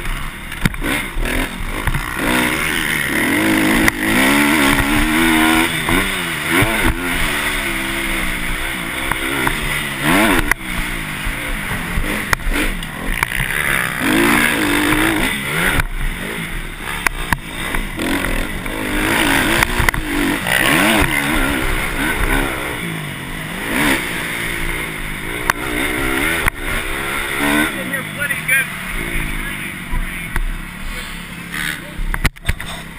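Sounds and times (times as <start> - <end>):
dirt bike engines revving: 0.0 - 32.9.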